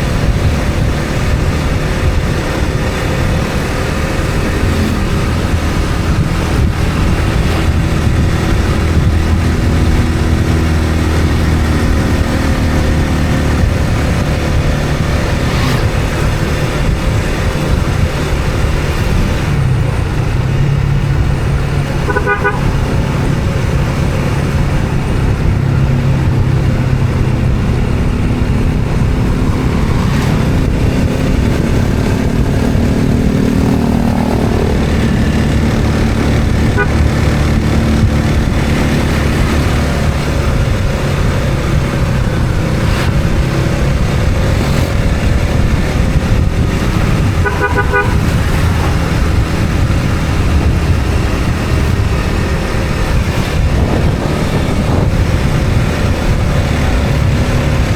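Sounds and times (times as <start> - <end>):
road noise: 0.0 - 57.9
vehicle engine running: 0.0 - 57.9
car horn toot: 22.0 - 23.0, 36.6 - 37.4, 47.3 - 48.8.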